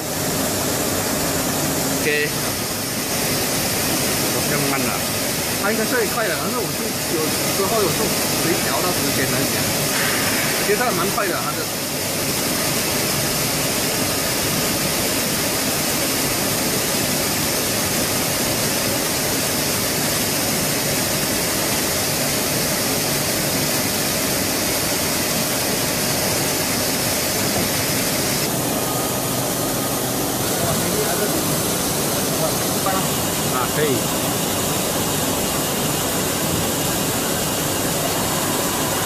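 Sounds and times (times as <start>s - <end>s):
lathe running with steady hiss: 0.0s - 39.0s.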